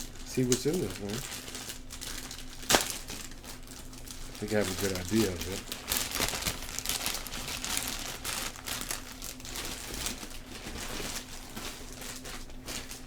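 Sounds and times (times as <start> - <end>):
cardboard package tearing: 0.0 - 13.0
packing crinkling: 0.0 - 13.0.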